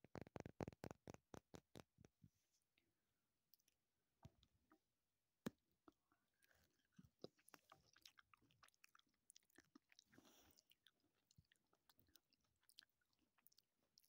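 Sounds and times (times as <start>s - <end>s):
person chewing candy: 5.8s - 14.0s.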